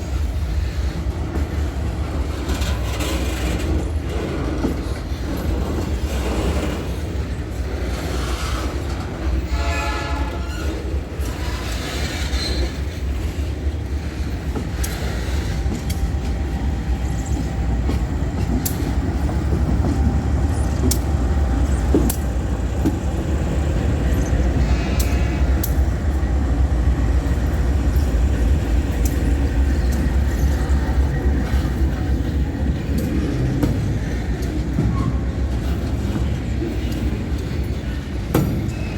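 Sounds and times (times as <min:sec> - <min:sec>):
freight train rolling past: 0:00.0 - 0:38.9
wheels clicking over rail joints: 0:10.4 - 0:38.9.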